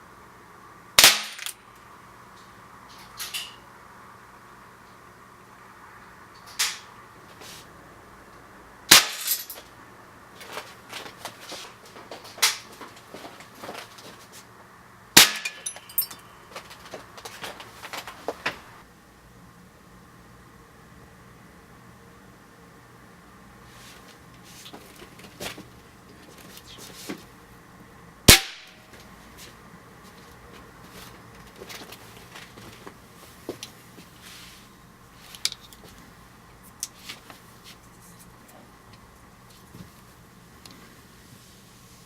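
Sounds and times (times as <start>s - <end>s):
loud sharp pellet cracks: 1.0s - 1.6s, 8.9s - 9.4s, 15.2s - 15.7s, 28.3s - 28.8s
air rifle shots: 28.3s - 28.8s.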